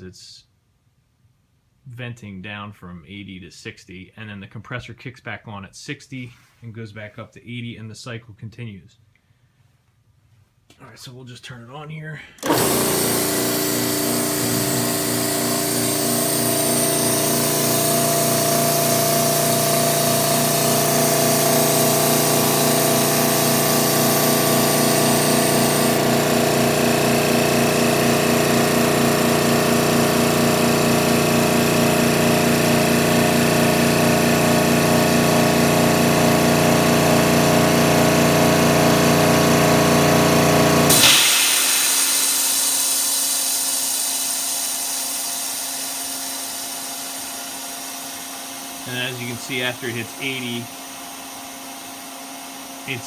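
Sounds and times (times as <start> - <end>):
air compressor running: 12.4 - 53.0
burst of air hiss: 40.9 - 47.2.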